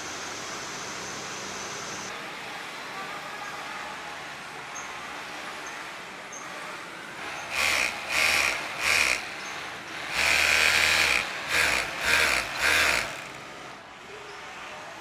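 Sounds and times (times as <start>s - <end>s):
steady mechanical background: 7.2s - 13.9s.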